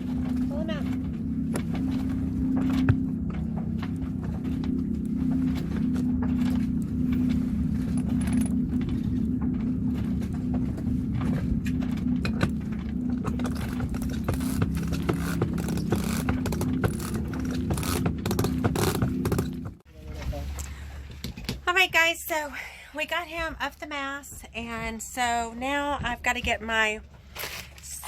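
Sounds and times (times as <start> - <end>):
winch humming: 0.0 - 28.0
winch clicking and rattling: 11.3 - 19.7.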